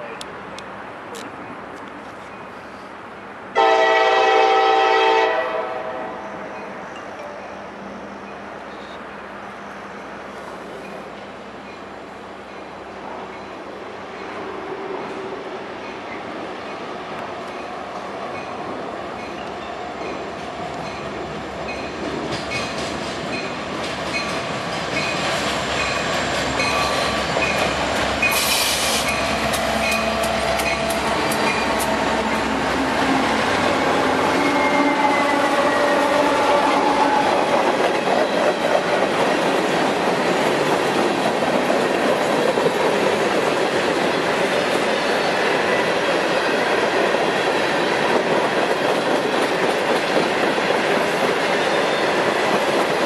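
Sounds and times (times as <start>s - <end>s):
diesel locomotives pulling: 0.0s - 53.0s
wheels clacking over rail joints: 18.3s - 53.0s.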